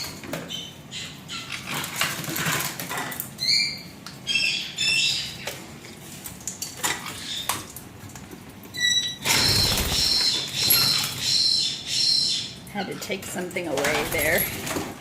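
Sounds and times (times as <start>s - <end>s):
parrot squawks: 8.8s - 12.6s
wings flapping and splashing water: 9.3s - 11.2s.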